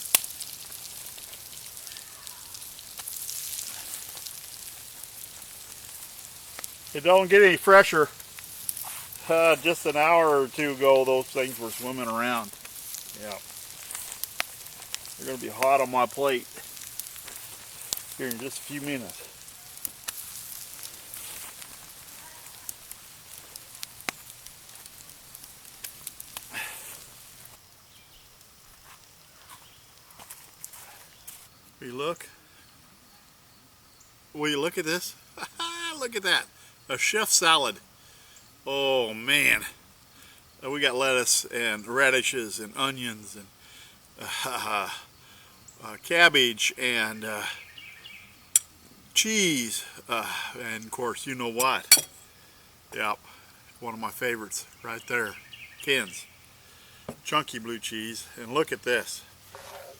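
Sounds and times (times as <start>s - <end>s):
oil popping and crackling: 0.0s - 31.5s, 34.7s - 37.8s, 38.7s - 59.6s
fish sizzling in hot oil: 0.0s - 31.6s.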